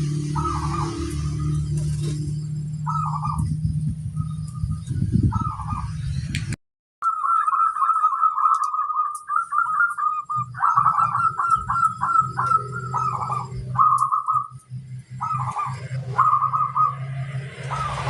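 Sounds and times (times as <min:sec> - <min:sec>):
dove cooing in trilled bursts: 0:02.9 - 0:03.4, 0:07.1 - 0:14.5, 0:15.2 - 0:17.0.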